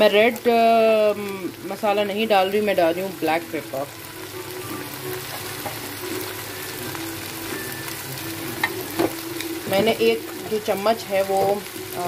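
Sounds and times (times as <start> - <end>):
food sizzling in hot oil: 0.0 - 12.0
wooden spoon scraping wok: 8.6 - 11.6.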